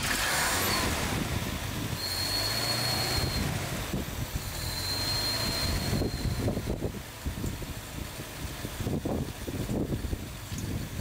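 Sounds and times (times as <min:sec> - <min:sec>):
car engine running: 0:00.0 - 0:11.0
thin high whine: 0:04.3 - 0:06.7.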